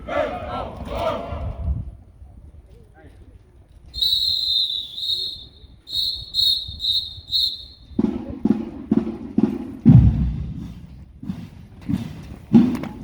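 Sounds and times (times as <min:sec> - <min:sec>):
shrill whistle blasts: 0:03.9 - 0:08.0
heavy drum beats: 0:07.8 - 0:12.9.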